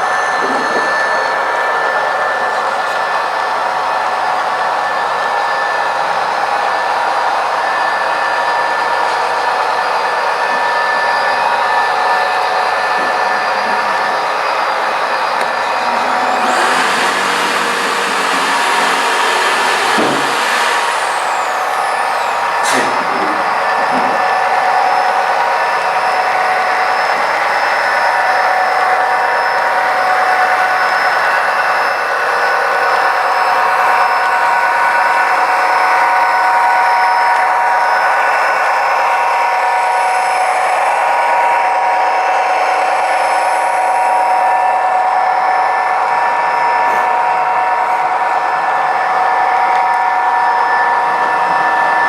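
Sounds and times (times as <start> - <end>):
model train whirring: 0.0 - 52.0
held tones: 9.0 - 28.5.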